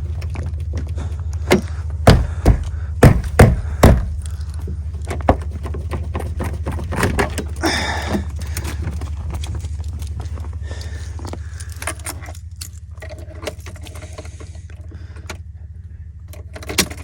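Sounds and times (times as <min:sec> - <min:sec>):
truck engine running: 0:00.0 - 0:17.0
loud thumps: 0:01.5 - 0:04.5.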